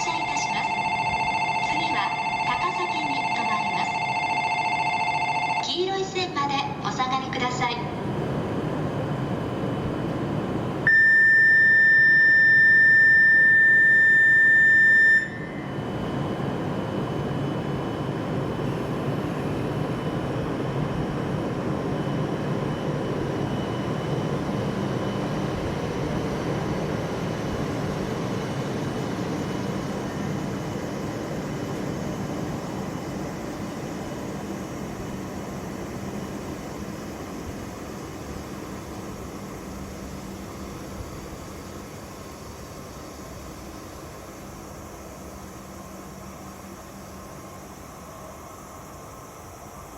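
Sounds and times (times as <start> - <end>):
platform departure buzzer: 0.0 - 5.8, 10.9 - 15.7.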